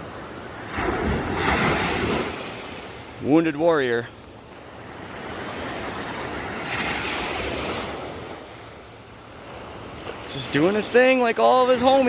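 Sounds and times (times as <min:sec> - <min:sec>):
ocean wave breaking on beach: 0:00.0 - 0:12.0.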